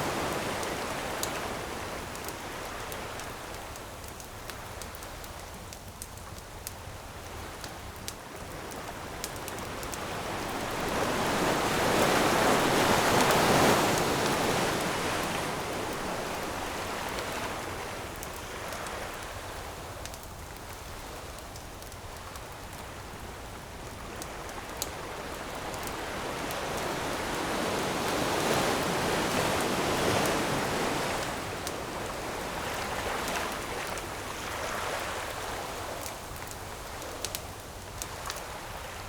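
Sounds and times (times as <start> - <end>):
ocean waves washing onto beach: 0.0 - 39.0
campfire crackling and popping: 2.1 - 17.3, 18.0 - 23.1, 35.3 - 38.7.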